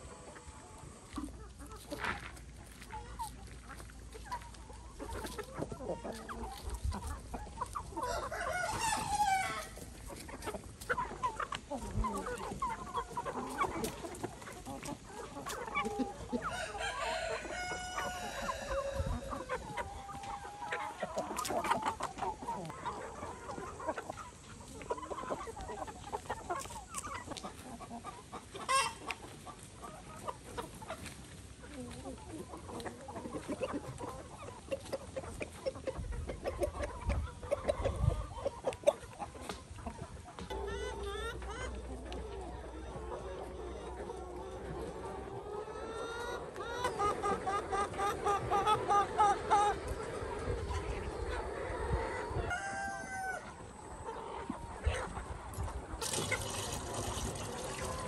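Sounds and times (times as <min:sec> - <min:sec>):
chickens clucking and calling: 0:00.0 - 0:58.0.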